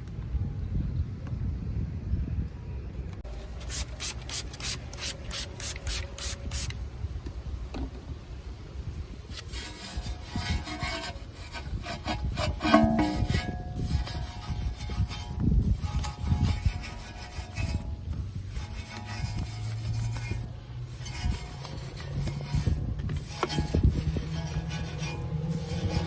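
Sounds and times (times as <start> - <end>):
hand rubbing car body: 8.9 - 26.0.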